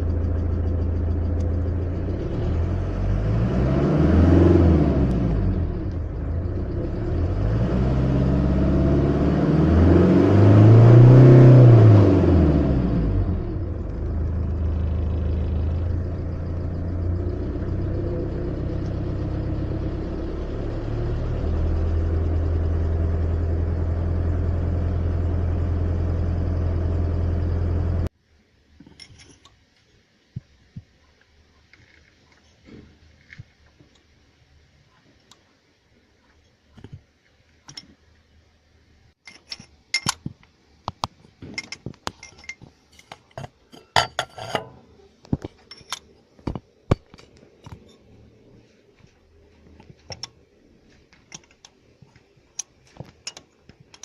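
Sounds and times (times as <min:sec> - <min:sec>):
diesel engine idling and revving: 0:00.0 - 0:28.1.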